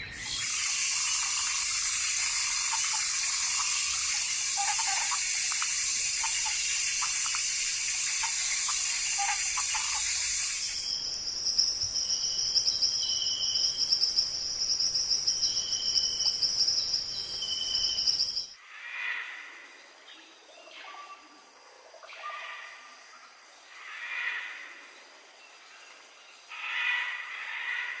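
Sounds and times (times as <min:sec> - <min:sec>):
water rushing: 0:00.0 - 0:10.8
bird calls: 0:00.0 - 0:11.0
insect trill: 0:00.0 - 0:19.8.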